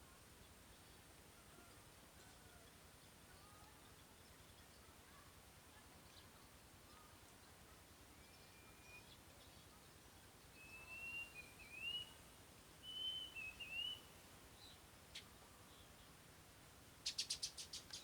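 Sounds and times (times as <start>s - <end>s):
faint outdoor background: 0.0s - 18.0s
thin whistled calls: 10.6s - 12.2s, 12.8s - 14.1s.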